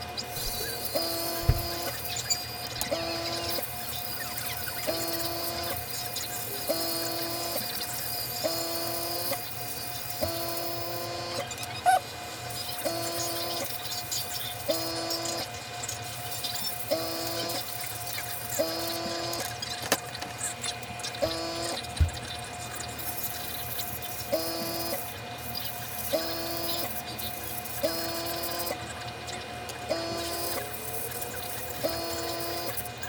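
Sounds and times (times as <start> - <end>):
machine whining: 0.1 - 6.0
machine humming: 0.3 - 2.0.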